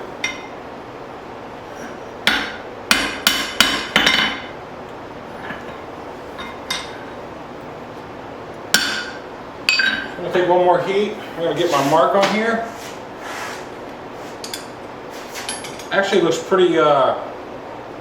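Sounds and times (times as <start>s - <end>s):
hammer striking metal on anvil: 0.2s - 0.5s, 2.2s - 4.5s, 6.4s - 7.0s, 8.7s - 10.2s.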